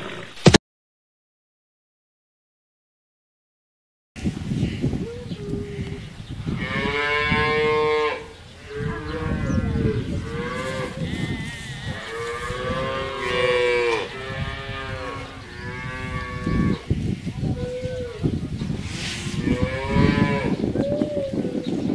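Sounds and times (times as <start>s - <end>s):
cows mooing: 6.5s - 16.9s, 19.3s - 20.6s.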